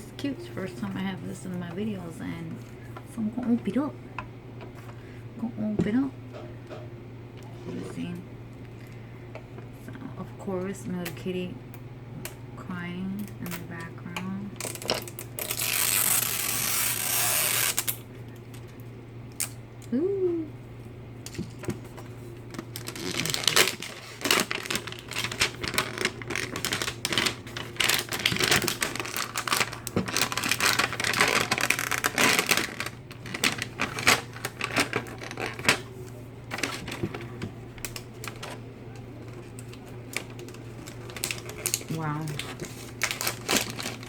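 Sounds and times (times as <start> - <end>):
steady low hum: 0.0 - 44.0
plastic packaging crinkling: 14.6 - 18.0, 21.3 - 44.0.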